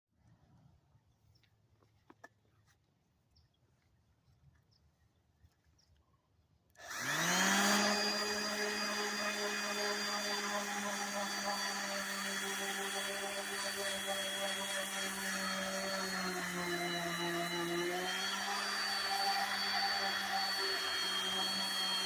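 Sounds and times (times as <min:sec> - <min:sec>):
electric sander motor whine: 0:06.8 - 0:22.0.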